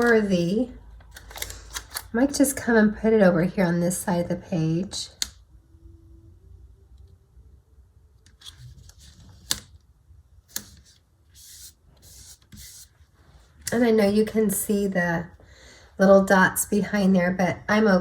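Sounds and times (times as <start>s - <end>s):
paper rustling: 8.3s - 9.8s, 10.5s - 13.5s.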